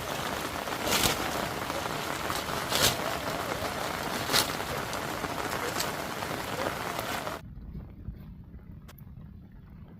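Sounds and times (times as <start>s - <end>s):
heavy rain: 0.0s - 7.4s.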